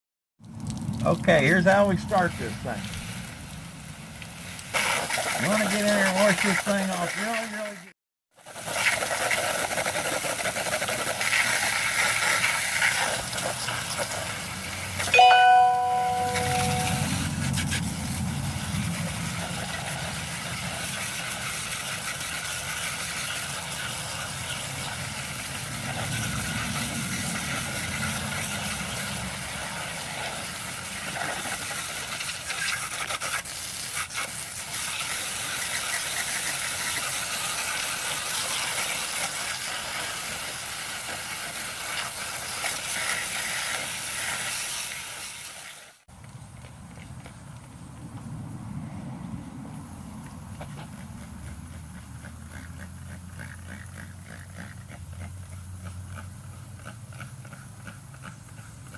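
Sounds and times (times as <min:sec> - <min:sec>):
hose water spraying on fan: 0:00.7 - 0:07.8, 0:08.4 - 0:15.0, 0:17.2 - 0:46.0
brief pitched tone: 0:15.2 - 0:17.4.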